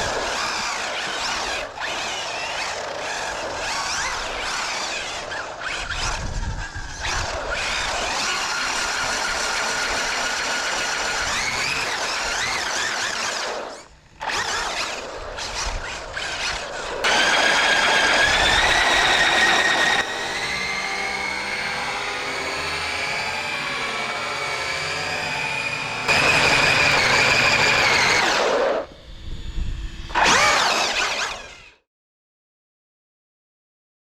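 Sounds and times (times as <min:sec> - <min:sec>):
rc car motor whining: 0:00.0 - 0:31.8.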